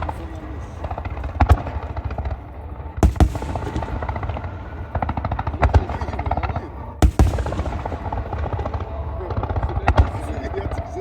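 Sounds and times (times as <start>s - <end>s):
fireworks bangs and crackles: 0.0s - 11.0s
heavy firework boom: 3.0s - 6.4s, 7.0s - 10.4s.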